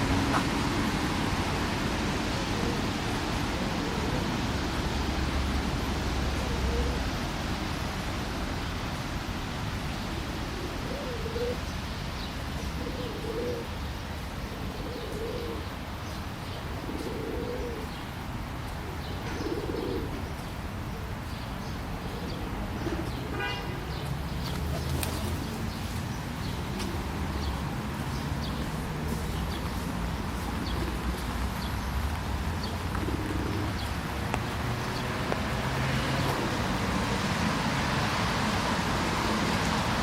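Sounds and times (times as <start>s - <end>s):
background hiss: 0.0s - 40.0s
pigeon cooing: 2.4s - 4.5s, 6.3s - 7.1s, 10.1s - 11.7s, 12.7s - 13.8s, 14.4s - 15.8s, 16.5s - 18.0s, 18.8s - 20.3s, 21.9s - 27.3s, 32.6s - 34.0s.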